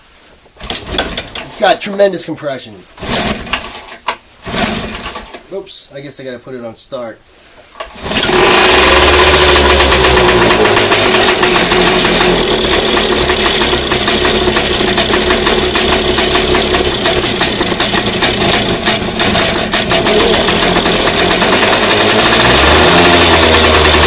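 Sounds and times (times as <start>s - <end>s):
outboard engine running: 8.0s - 24.0s.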